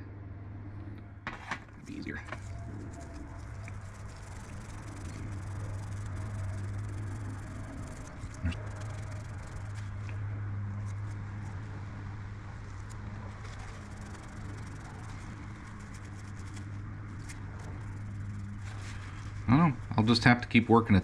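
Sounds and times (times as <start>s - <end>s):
low steady hum: 0.0s - 21.0s
rubbing brass by hand: 2.2s - 10.1s.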